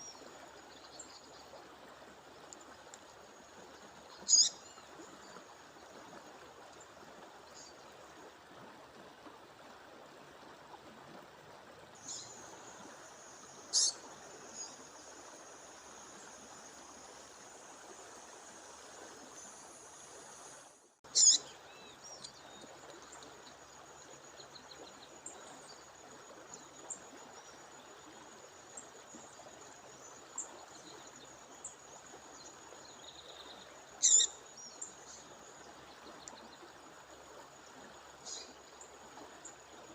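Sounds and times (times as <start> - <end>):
songbird chirping: 21.1 - 25.9, 32.4 - 36.7.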